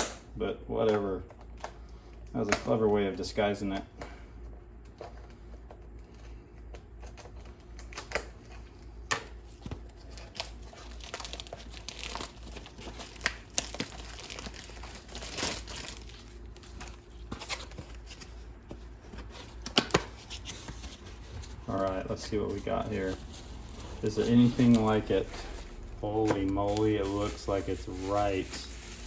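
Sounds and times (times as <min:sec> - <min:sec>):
packaging torn and crinkled: 0:07.0 - 0:18.3, 0:19.5 - 0:29.0.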